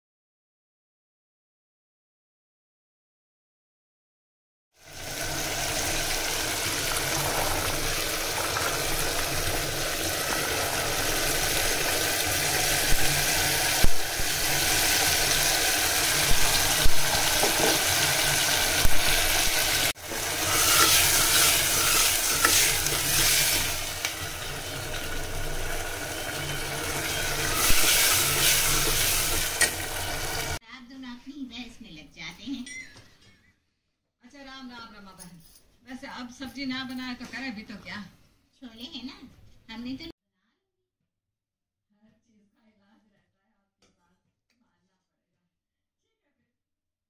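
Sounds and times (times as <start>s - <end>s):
food sizzling in a pan: 4.8s - 30.6s.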